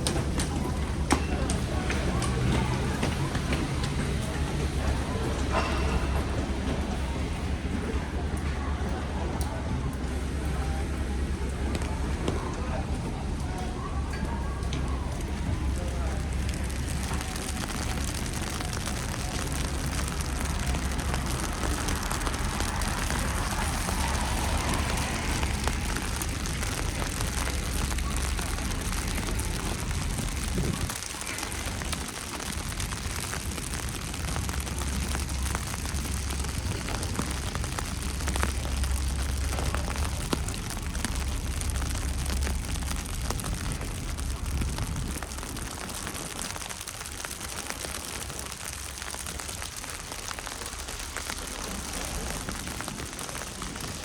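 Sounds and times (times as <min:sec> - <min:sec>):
wet snow and rain falling: 0:00.0 - 0:54.0
low rumble: 0:14.9 - 0:46.8.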